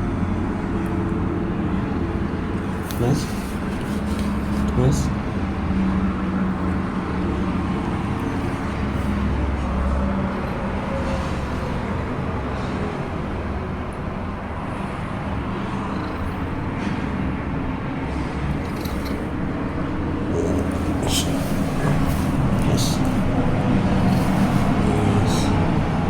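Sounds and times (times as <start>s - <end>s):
constant hum: 15.2s - 26.0s.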